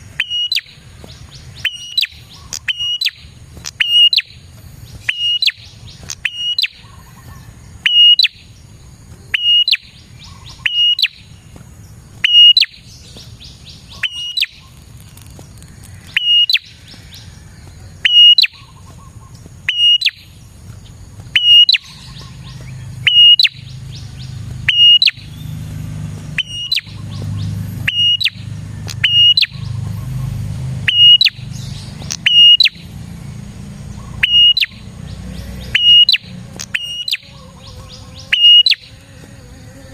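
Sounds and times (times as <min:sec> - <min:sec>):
bird chirping: 0:00.0 - 0:39.9
fast ticking trills: 0:21.2 - 0:39.0.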